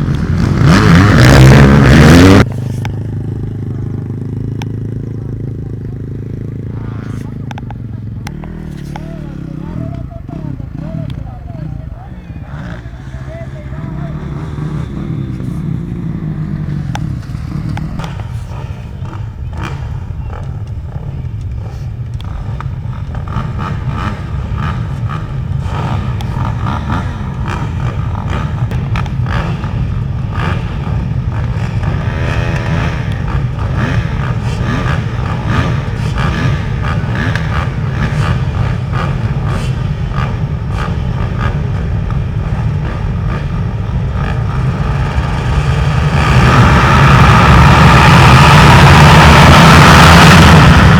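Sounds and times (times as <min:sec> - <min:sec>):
motocross bike engines revving: 0:00.0 - 0:50.9.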